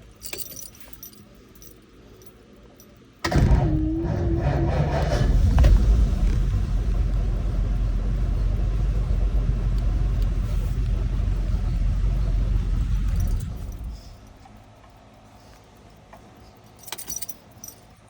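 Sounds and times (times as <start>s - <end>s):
car engine idling: 3.3s - 14.4s.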